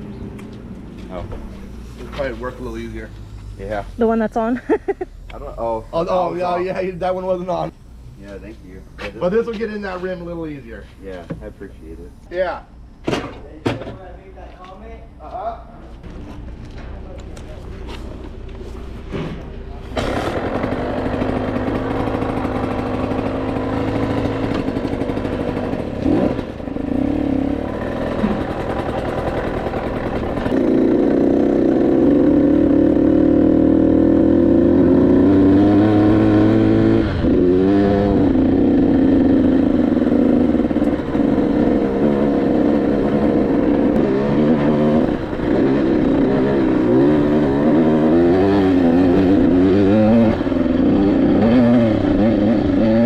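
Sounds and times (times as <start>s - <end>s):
dirt bike engine revving: 18.6s - 53.0s.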